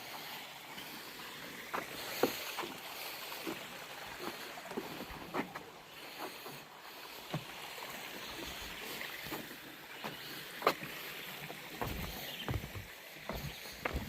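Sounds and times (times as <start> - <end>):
footsteps on forest trail: 1.6 - 14.0.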